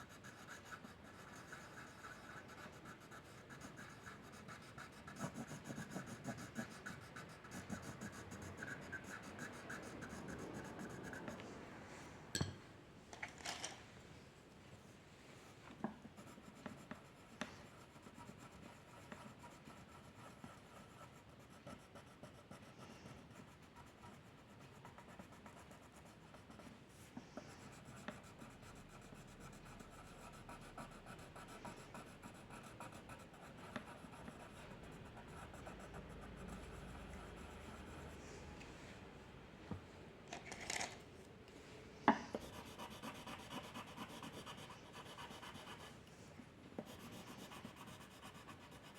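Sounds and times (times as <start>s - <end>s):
drawing tool scratching on paper: 0.1s - 11.3s, 42.4s - 46.0s, 46.8s - 48.9s.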